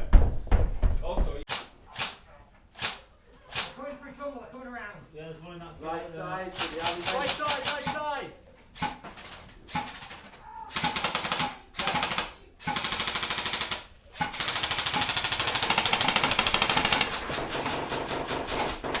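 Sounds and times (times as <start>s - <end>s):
airsoft guns firing full auto: 1.5s - 4.0s, 6.5s - 19.0s.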